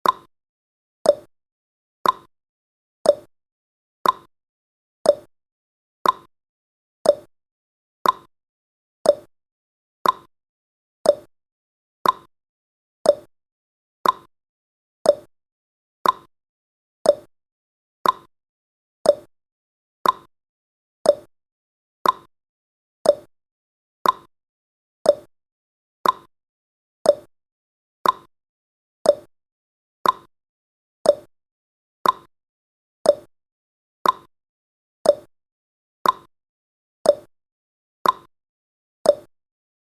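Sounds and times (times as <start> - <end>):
clock-like timer ticking: 0.0 - 0.3, 1.1 - 1.3, 2.0 - 2.3, 3.1 - 3.3, 4.0 - 4.3, 5.1 - 5.3, 6.0 - 6.3, 7.1 - 7.3, 8.0 - 8.3, 9.1 - 9.3, 10.0 - 10.3, 11.1 - 11.3, 12.0 - 12.3, 13.1 - 13.3, 14.0 - 14.3, 15.1 - 15.3, 16.0 - 16.3, 17.0 - 17.3, 18.0 - 18.3, 19.0 - 19.3, 20.0 - 20.3, 21.0 - 21.3, 22.0 - 22.3, 23.0 - 23.3, 24.0 - 24.3, 25.0 - 25.3, 26.0 - 26.3, 27.0 - 27.3, 28.0 - 28.3, 29.0 - 29.3, 30.0 - 30.3, 31.0 - 31.3, 32.0 - 32.3, 33.0 - 33.3, 34.0 - 34.3, 35.0 - 35.3, 36.0 - 36.3, 37.1 - 37.3, 38.0 - 38.3, 39.1 - 39.3.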